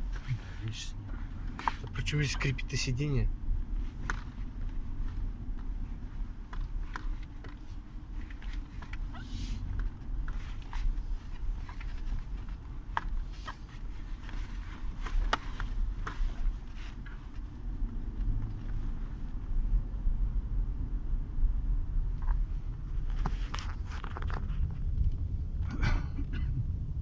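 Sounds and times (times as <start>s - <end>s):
car cabin rumble: 0.0s - 27.0s
car seat creaking: 3.8s - 19.5s, 22.1s - 25.0s.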